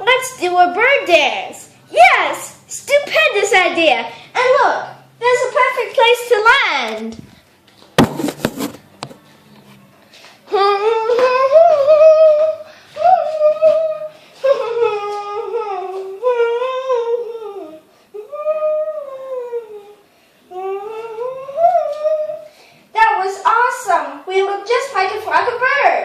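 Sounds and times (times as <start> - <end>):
person humming a tune: 10.5 - 22.5.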